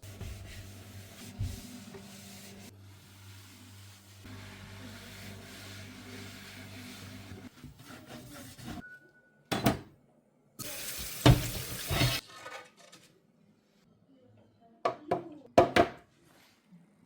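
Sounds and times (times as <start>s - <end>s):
water running from a tap: 10.6s - 12.2s.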